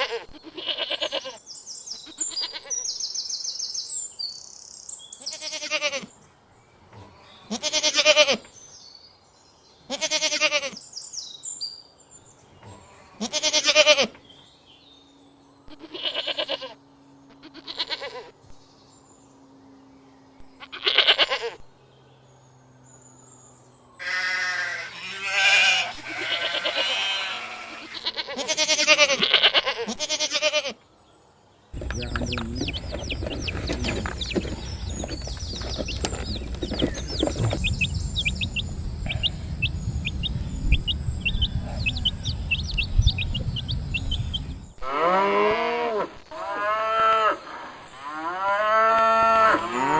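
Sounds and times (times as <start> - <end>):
animals bleating: 0.0 - 1.4, 5.2 - 6.1, 7.5 - 8.4, 9.9 - 10.8, 13.2 - 14.2, 15.7 - 18.3, 20.6 - 21.6, 24.0 - 30.8, 31.8 - 45.8
steady low rumble: 31.8 - 44.8.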